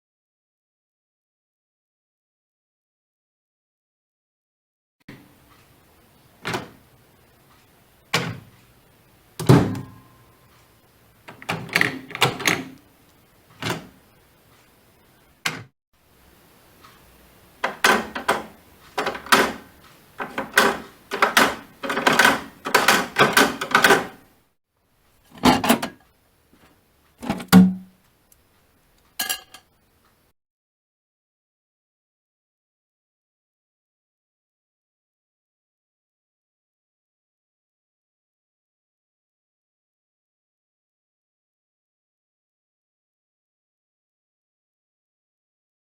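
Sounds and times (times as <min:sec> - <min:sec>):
microwave door clicks and thunks: 0:06.4 - 0:06.8, 0:08.2 - 0:08.5, 0:09.4 - 0:10.0, 0:13.6 - 0:13.9, 0:17.6 - 0:24.2, 0:27.2 - 0:27.9.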